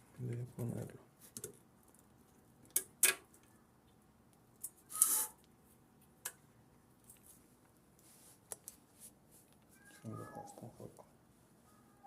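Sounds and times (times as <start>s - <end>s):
short metal scrape: 4.9s - 5.4s.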